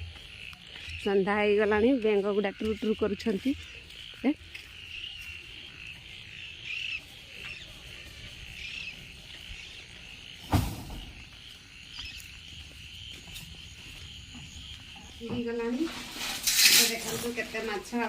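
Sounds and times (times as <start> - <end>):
frogs croaking: 0.0 - 16.1
sharp thump: 10.5 - 11.2.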